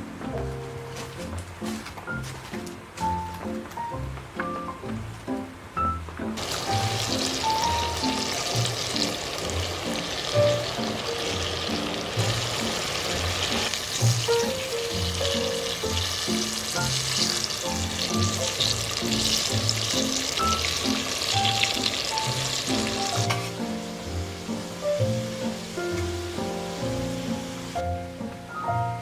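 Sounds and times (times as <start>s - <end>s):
background music with melody: 0.0s - 29.0s
food sizzling in hot pan: 6.4s - 28.0s.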